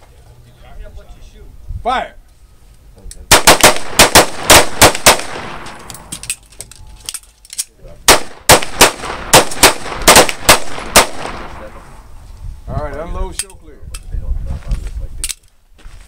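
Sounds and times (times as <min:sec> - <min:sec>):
handgun shots: 0:03.3 - 0:06.3, 0:08.1 - 0:11.6.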